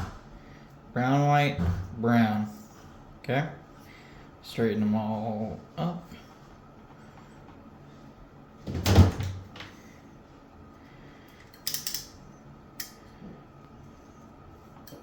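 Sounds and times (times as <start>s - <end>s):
crackly clicks of wires: 11.3s - 12.2s.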